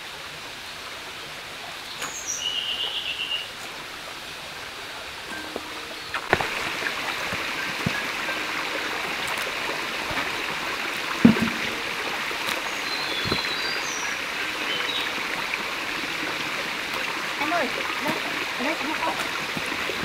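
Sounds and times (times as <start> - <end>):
stream water running: 0.0 - 20.0
sharp thump: 11.2 - 11.8.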